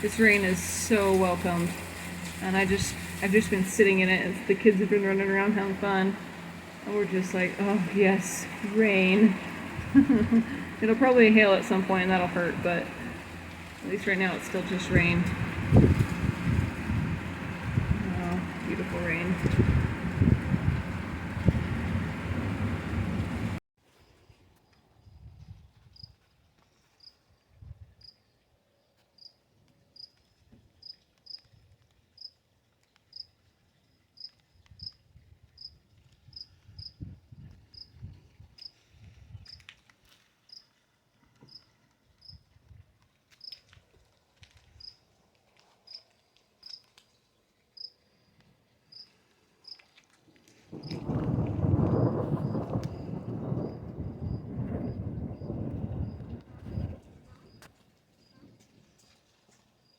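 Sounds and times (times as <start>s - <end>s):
low rumble: 0.0s - 23.6s, 50.8s - 57.4s.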